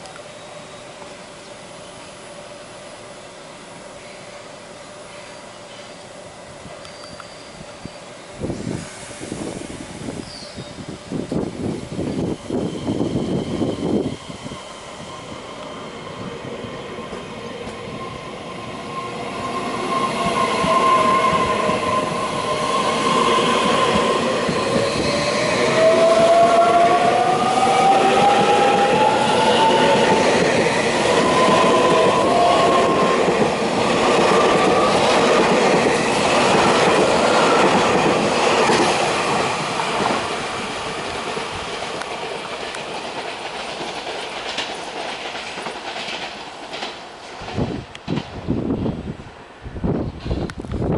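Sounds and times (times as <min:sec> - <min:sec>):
wheel and track noise: 0:11.2 - 0:49.2
electric train motor whine: 0:11.3 - 0:41.7.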